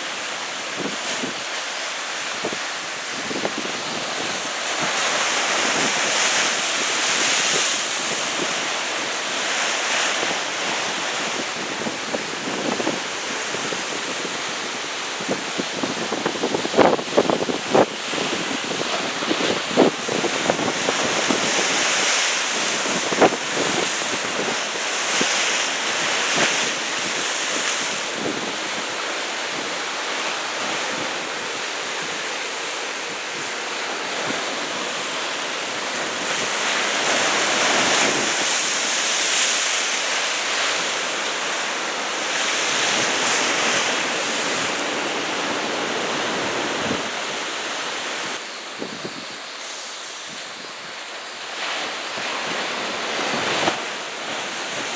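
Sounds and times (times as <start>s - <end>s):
ocean waves crashing: 0.0s - 54.9s
wind on microphone: 2.3s - 54.9s.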